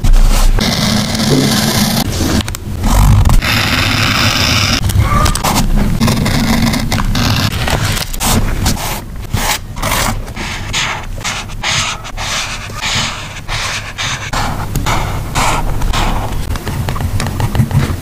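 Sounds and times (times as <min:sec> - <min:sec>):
paper rustling and scraping: 0:05.3 - 0:18.0.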